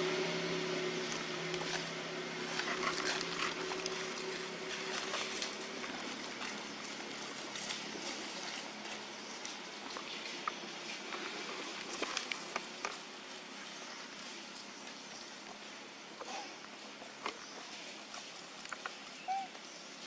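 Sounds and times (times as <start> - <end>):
motor engine hum: 0.0 - 19.4
outdoor background noise: 0.0 - 20.0
small clicks and rustles: 2.5 - 15.6, 16.2 - 19.2.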